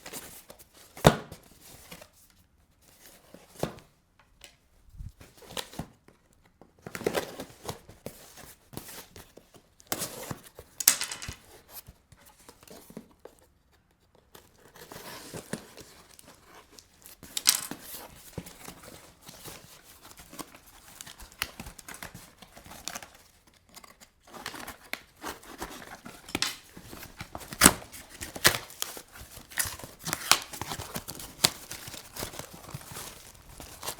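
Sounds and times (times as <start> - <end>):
packaging tearing and crinkling: 15.2 - 18.2, 24.3 - 33.9.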